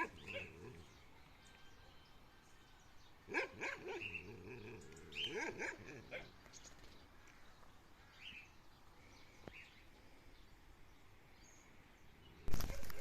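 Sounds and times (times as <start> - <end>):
dog barking: 0.0 - 0.7, 3.3 - 4.2, 5.2 - 6.3.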